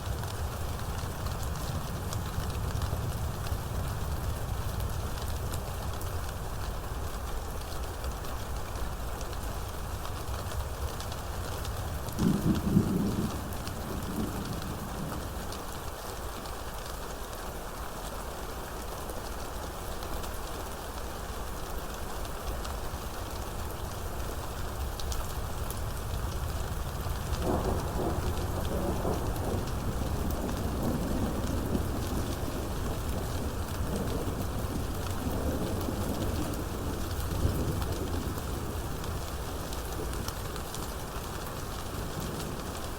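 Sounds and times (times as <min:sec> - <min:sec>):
steady rain: 0:00.0 - 0:42.9
thunder rumbling: 0:12.2 - 0:15.5, 0:26.3 - 0:40.2.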